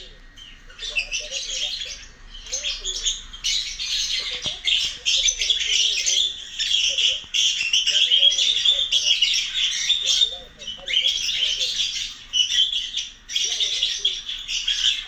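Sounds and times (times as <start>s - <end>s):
lovebird chattering and squawking: 0.0s - 15.0s.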